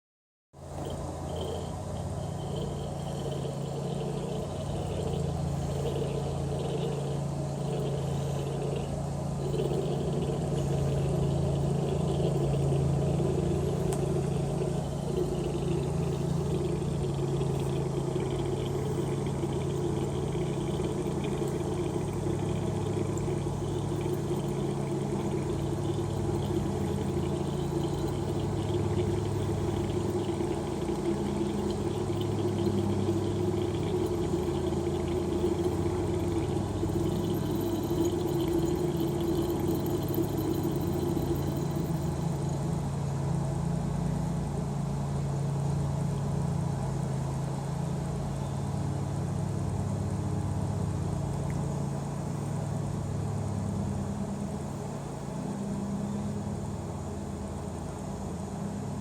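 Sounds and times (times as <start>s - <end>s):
turtle gurgling: 0.6s - 43.0s.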